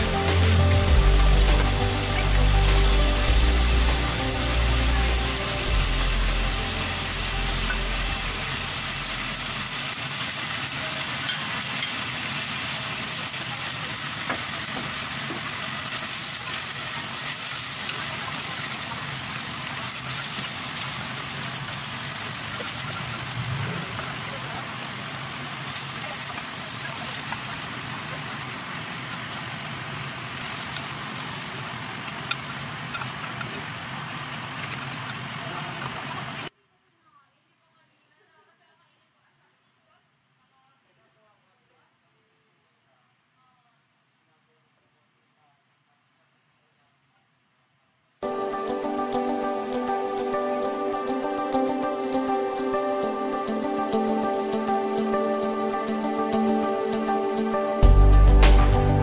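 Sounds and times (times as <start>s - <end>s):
livers sizzling in butter: 0.0s - 36.5s.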